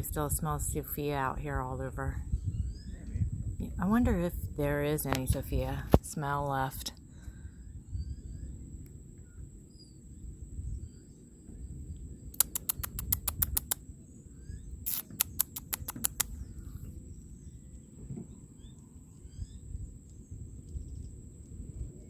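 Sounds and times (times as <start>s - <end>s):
faint bird chirps: 7.5s - 15.4s, 16.1s - 21.1s
runs of sharp clicks: 12.4s - 13.8s, 14.9s - 16.3s.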